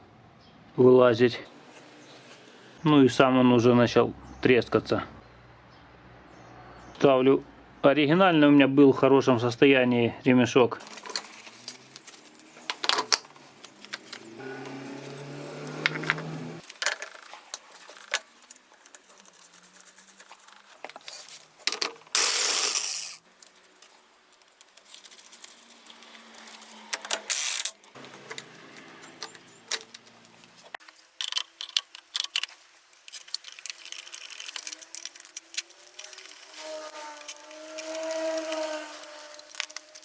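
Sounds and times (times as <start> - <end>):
metal parts and tools clinking: 10.8 - 40.0.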